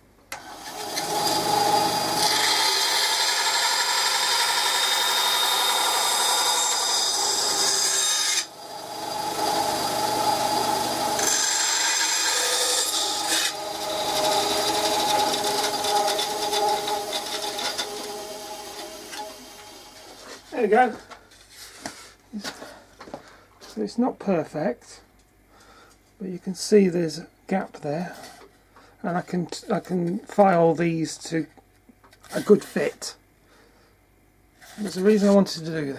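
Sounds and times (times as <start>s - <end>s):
bandsaw cutting wood: 0.3s - 20.5s.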